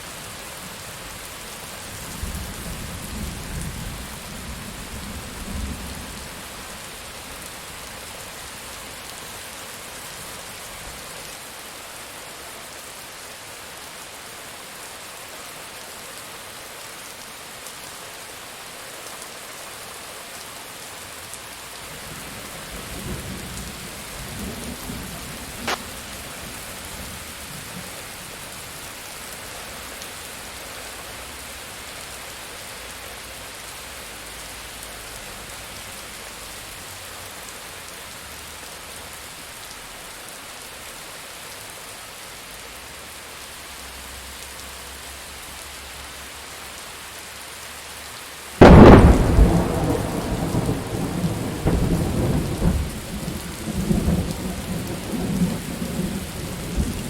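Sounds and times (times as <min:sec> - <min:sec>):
steady rain falling: 0:00.0 - 0:57.0
thunderclap rolling into rumbling: 0:48.6 - 0:52.9.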